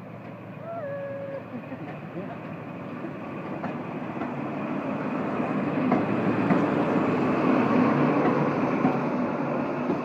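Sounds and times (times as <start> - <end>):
diesel train approaching: 0.0 - 10.0
wheels clicking over rail joints: 1.7 - 4.6, 5.7 - 7.0, 7.6 - 10.0.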